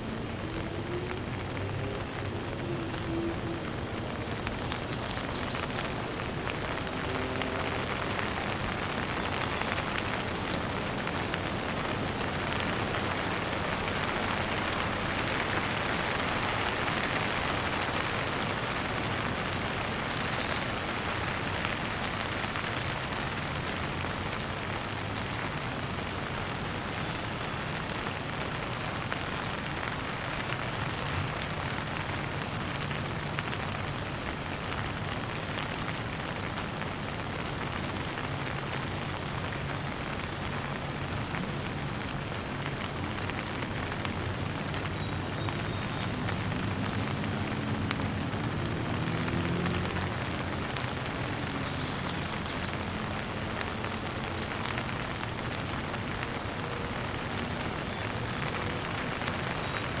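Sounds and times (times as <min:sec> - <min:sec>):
steady rain falling: 0:00.0 - 1:00.0
bird chirp: 0:19.3 - 0:20.8.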